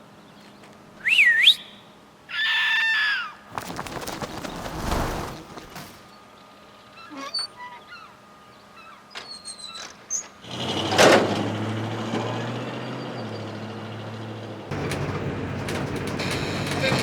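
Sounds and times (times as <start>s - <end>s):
vehicle engine starting and running: 10.4s - 17.0s.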